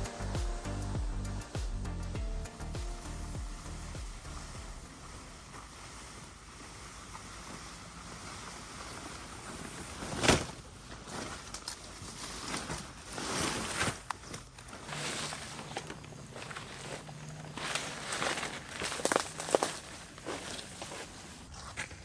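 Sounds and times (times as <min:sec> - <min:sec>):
steady rain hiss: 0:00.0 - 0:07.1, 0:14.9 - 0:21.5.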